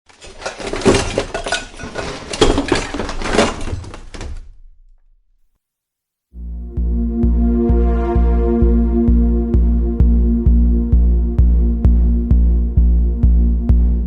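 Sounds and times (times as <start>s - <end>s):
hard objects clattering: 0.0s - 4.5s
music: 6.4s - 14.0s.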